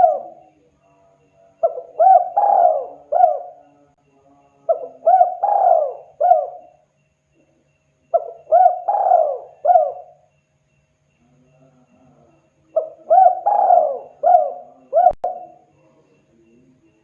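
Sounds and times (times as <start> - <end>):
dove cooing: 0.0 - 0.5, 1.6 - 3.8, 4.7 - 6.8, 8.1 - 10.3, 12.7 - 15.6.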